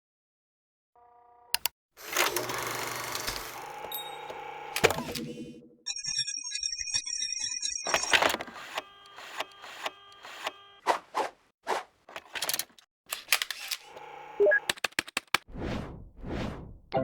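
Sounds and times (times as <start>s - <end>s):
sharp clicks: 12.2s - 15.5s
short swishing effects: 15.5s - 16.9s.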